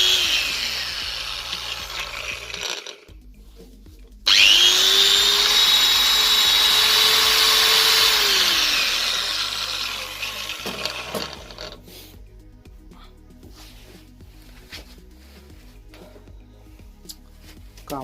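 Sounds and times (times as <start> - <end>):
angle grinder whining: 0.0 - 3.1, 4.3 - 11.8.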